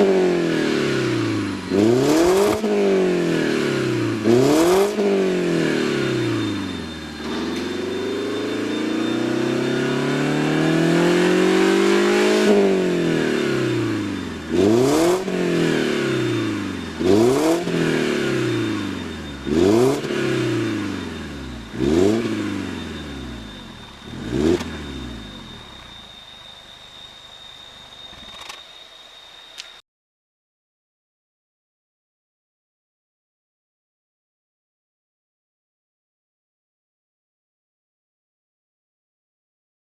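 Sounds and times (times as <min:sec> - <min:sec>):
car engine revving: 0:00.0 - 0:26.3
car engine idling: 0:01.0 - 0:11.4, 0:12.3 - 0:28.3.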